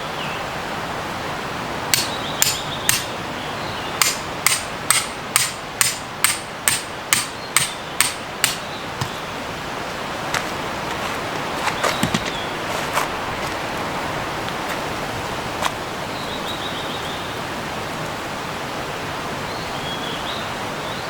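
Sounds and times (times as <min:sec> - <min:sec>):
hammer striking metal tent peg: 0:01.9 - 0:03.1, 0:04.0 - 0:09.2.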